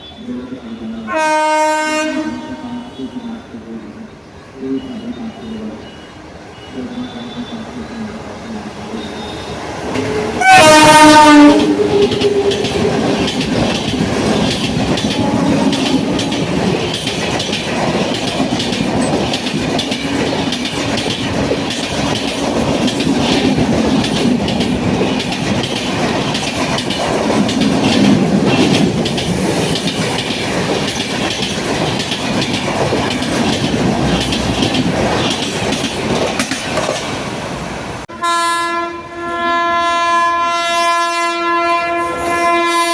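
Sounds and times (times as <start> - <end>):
train coaches rumbling past: 0.0 - 42.9
train horn: 0.1 - 3.4, 9.3 - 12.7, 15.0 - 16.8, 38.1 - 42.9
wheels clattering over rail joints: 11.2 - 37.4.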